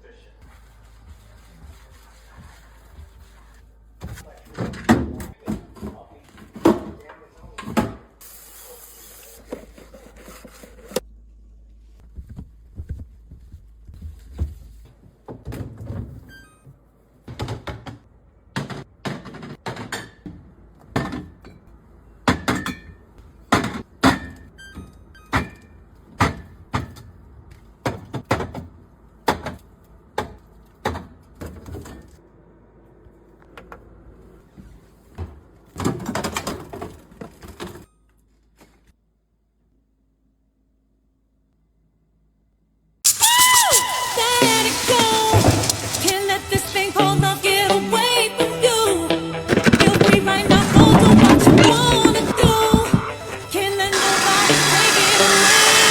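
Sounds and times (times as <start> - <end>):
items knocking and clunking: 4.0 - 8.0, 17.3 - 22.9, 49.4 - 54.7
rustling or scraping: 49.5 - 54.0.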